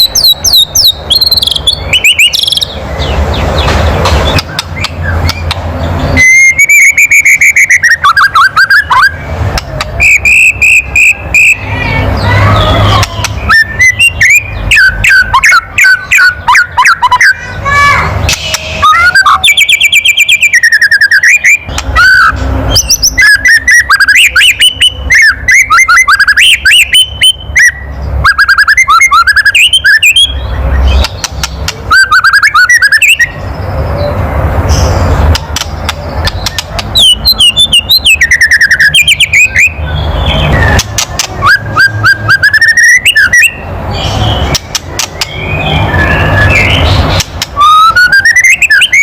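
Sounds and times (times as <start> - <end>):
bird whistled notes: 0.0 - 3.7, 4.3 - 9.2, 10.0 - 17.5, 18.3 - 33.4, 36.3 - 49.0.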